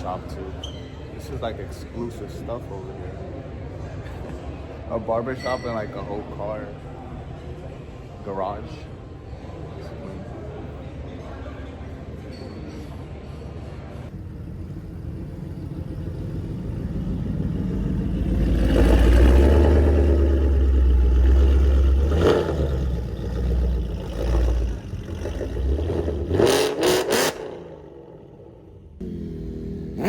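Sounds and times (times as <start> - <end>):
vehicle engine rumbling and revving: 14.1 - 30.0.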